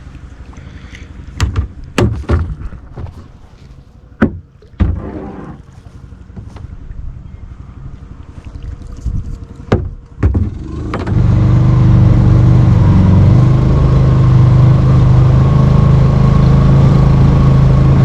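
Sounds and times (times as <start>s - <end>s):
sharp knocks: 1.4s - 3.1s, 4.2s - 5.2s, 9.7s - 11.2s
small engine running loudly: 10.6s - 18.0s.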